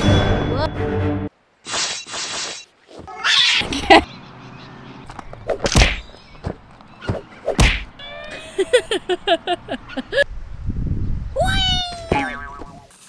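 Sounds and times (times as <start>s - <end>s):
thuds on punching bag: 7.6s - 7.9s.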